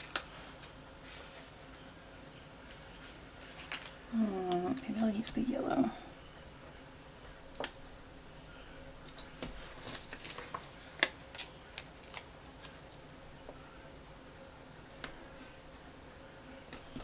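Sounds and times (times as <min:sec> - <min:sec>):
paper rustling: 0:00.0 - 0:01.6, 0:02.6 - 0:05.5, 0:09.1 - 0:13.0.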